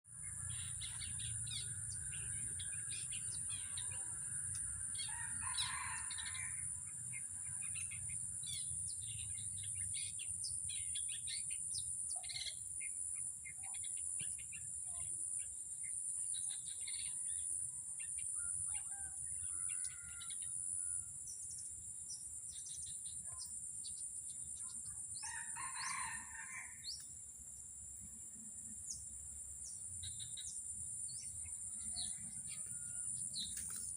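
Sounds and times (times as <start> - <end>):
small birds chirping: 0.1 - 27.2
rooster crowing: 5.0 - 6.6, 18.7 - 21.0, 25.2 - 26.8.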